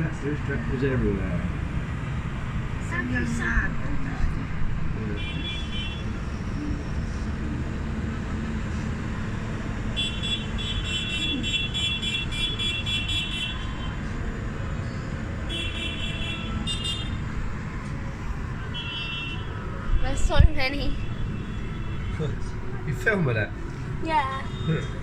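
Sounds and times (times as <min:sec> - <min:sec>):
vehicle engines and road noise: 0:00.0 - 0:25.0
horn tooting: 0:05.1 - 0:06.2, 0:09.9 - 0:14.0, 0:15.5 - 0:17.2, 0:18.7 - 0:22.6, 0:24.1 - 0:25.0.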